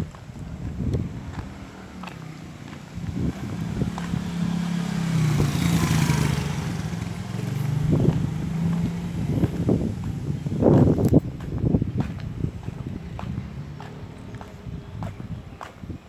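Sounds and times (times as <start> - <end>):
vehicle engine hum passing: 0.0 - 16.0.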